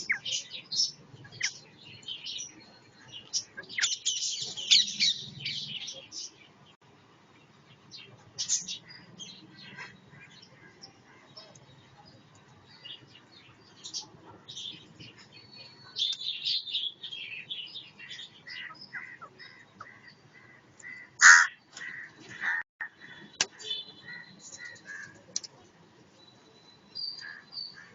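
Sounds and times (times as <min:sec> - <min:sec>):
parrots squawking: 0:20.8 - 0:22.6.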